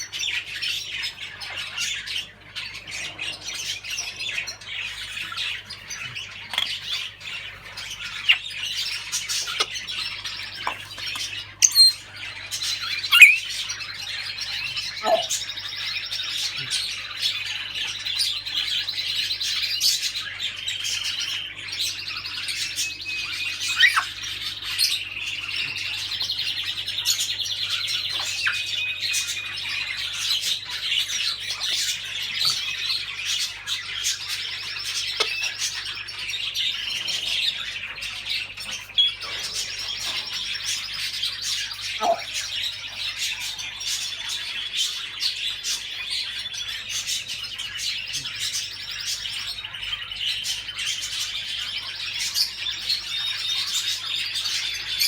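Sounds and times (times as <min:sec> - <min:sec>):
small birds chirping and trilling: 0:00.0 - 0:55.0
bird squawks: 0:00.3 - 0:18.0, 0:19.8 - 0:36.3, 0:36.9 - 0:44.2.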